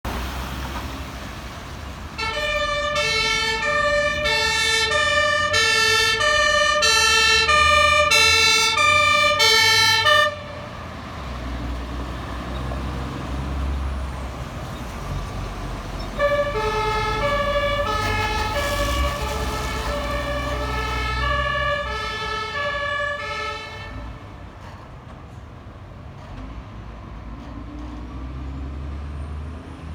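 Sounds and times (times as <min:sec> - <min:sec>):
diesel engines rumbling: 0:00.0 - 0:29.9
two-tone fire siren: 0:02.2 - 0:11.0, 0:15.9 - 0:24.2.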